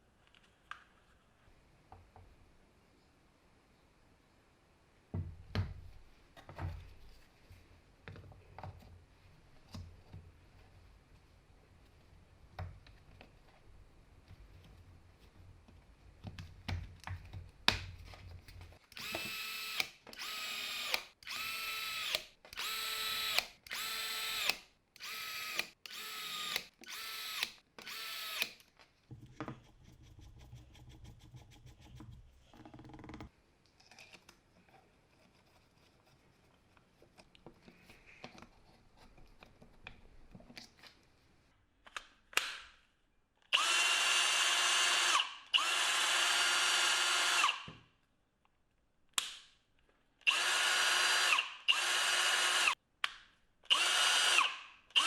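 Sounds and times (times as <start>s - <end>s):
cordless drill motor whining: 19.0s - 28.6s, 43.6s - 47.7s, 50.3s - 52.8s, 53.7s - 55.0s.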